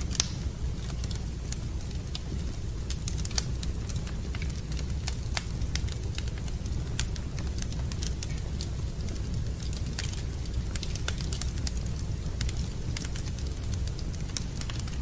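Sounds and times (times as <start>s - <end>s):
sharp pops of fire: 0.0s - 1.7s
steady low rumble: 0.0s - 15.0s
wood fire crackling: 0.0s - 15.0s.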